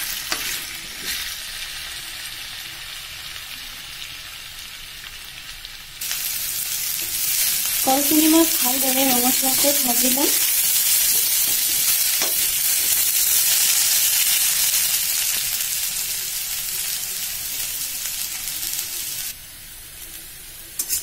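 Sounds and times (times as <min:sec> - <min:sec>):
banana slices sizzling in oil: 0:00.0 - 0:21.0.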